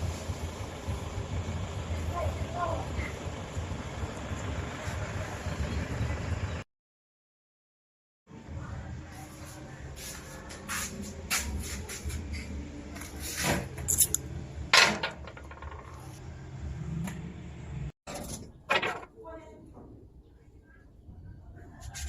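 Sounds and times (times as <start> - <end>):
tools knocking and scraping wood: 14.8 - 16.2.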